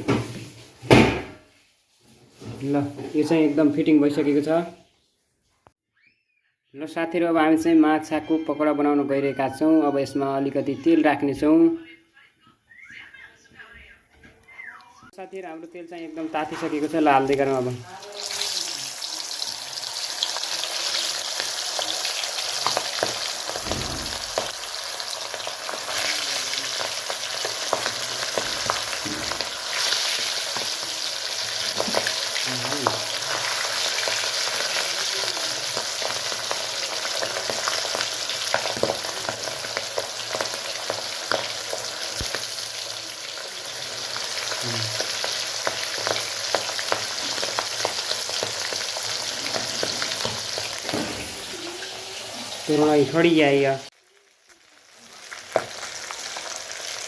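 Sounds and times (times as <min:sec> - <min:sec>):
fish sizzling in hot oil: 0:15.4 - 0:57.0.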